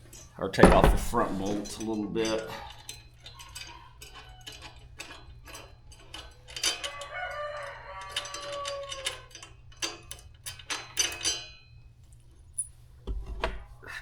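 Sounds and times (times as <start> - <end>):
metallic clinks of tools: 0.1 - 12.8
rooster crowing: 6.7 - 9.5.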